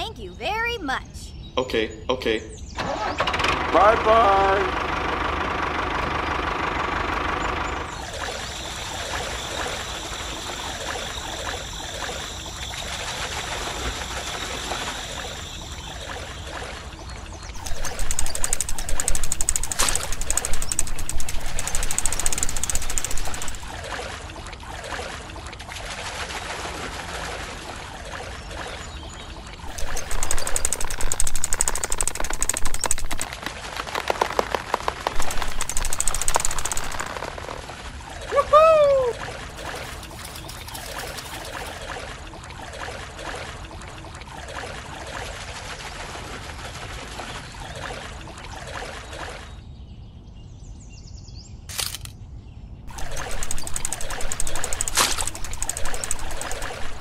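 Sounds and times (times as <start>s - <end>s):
water splashing and dripping: 7.9s - 49.6s, 52.9s - 57.0s
sharp click: 51.7s - 52.2s, 53.0s - 56.9s.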